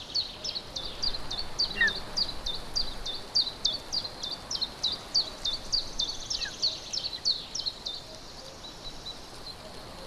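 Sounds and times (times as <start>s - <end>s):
eagle chick begging calls: 1.6s - 2.0s.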